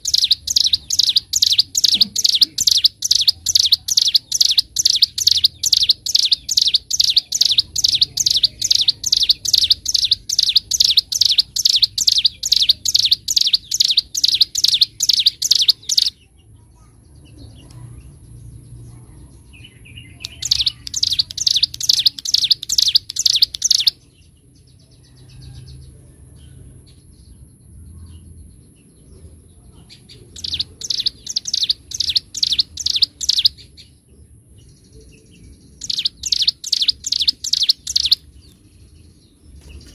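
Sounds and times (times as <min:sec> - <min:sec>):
bird singing sharp high notes: 0:00.0 - 0:16.2, 0:20.1 - 0:24.0, 0:35.8 - 0:38.3.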